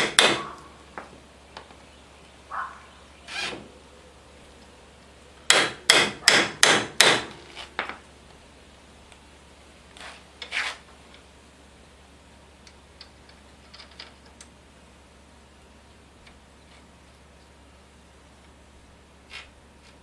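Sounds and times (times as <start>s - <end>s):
scraping and rubbing: 3.2s - 3.7s, 9.9s - 10.9s, 19.2s - 20.0s
hammer blows: 5.5s - 7.4s.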